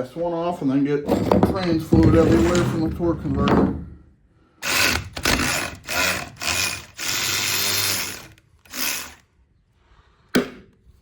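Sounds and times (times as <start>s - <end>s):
pneumatic wrench spinning: 4.6s - 9.3s.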